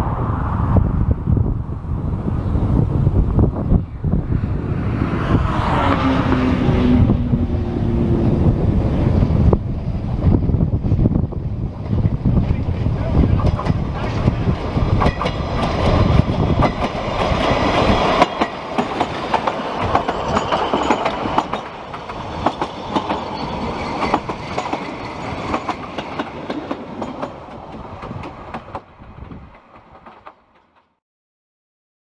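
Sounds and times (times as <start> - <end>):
low rumble: 0.0 - 18.0
train wheels clicking over rail joints: 11.8 - 30.9.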